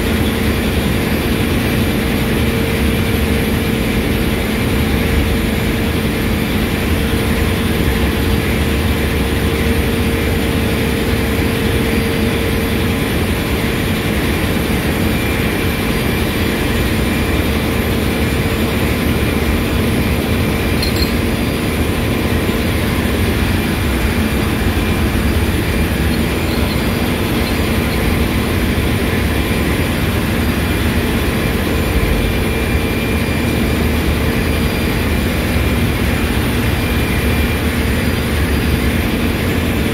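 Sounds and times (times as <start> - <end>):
machinery humming: 0.0 - 39.9.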